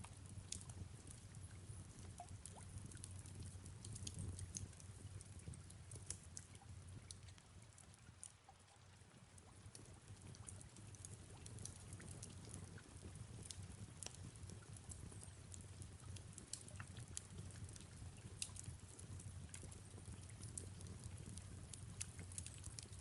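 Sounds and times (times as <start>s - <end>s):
fireplace crackling and popping: 0.0s - 23.0s.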